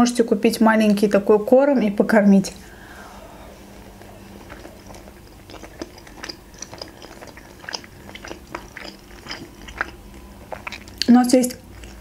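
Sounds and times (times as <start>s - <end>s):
person chewing dumplings: 2.7s - 12.0s.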